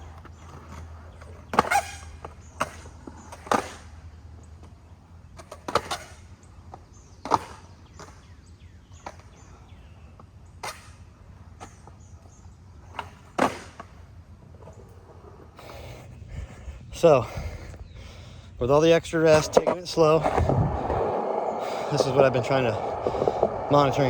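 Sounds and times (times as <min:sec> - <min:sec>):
faint low hum: 0:16.0 - 0:24.0
skateboard clacking on concrete: 0:19.3 - 0:24.0.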